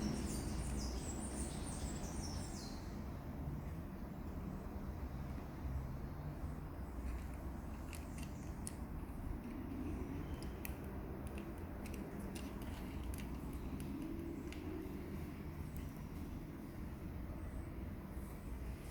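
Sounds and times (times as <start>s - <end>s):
light handling clicks: 10.3s - 14.8s.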